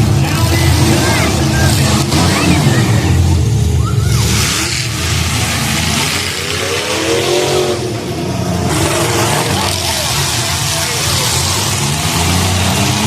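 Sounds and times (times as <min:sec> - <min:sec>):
car engines running hard: 0:00.0 - 0:13.0
engine revving up and down: 0:00.0 - 0:13.0.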